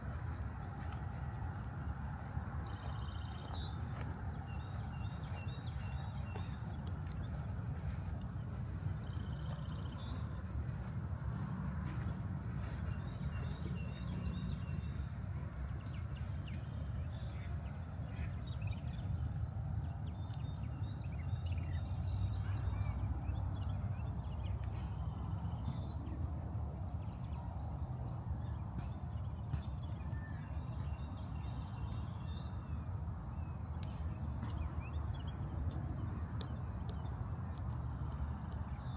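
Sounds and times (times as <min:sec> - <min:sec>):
footsteps walking: 0:00.0 - 0:14.7
distant city traffic rumble: 0:00.0 - 0:38.9
birds chirping: 0:00.1 - 0:26.5.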